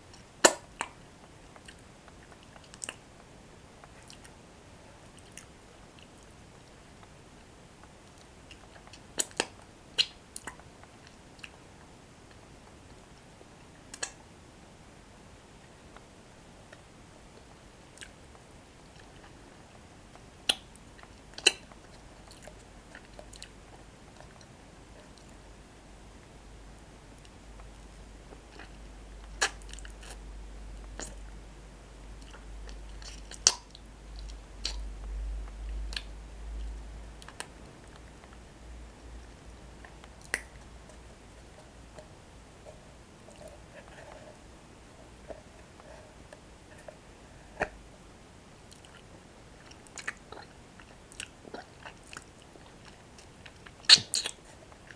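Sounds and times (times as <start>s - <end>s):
crunchy bread sticks chewing: 27.2s - 30.2s.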